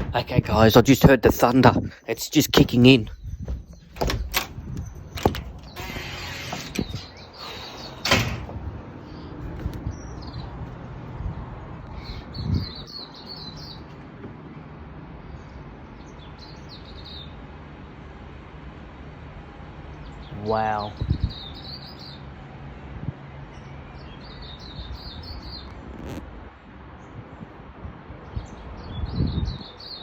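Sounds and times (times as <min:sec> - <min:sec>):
birds chirping: 0:00.0 - 0:10.8, 0:11.8 - 0:14.4, 0:20.0 - 0:22.3
wind rumbling on microphone: 0:00.0 - 0:14.4, 0:20.8 - 0:22.0, 0:24.6 - 0:30.0
low thump: 0:03.4 - 0:05.6.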